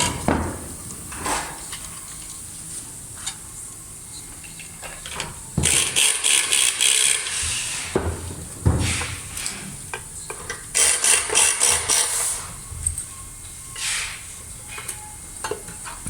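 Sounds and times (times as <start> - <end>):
rustling and scraping of parts: 0.0 - 16.0
knocks: 7.9 - 9.5.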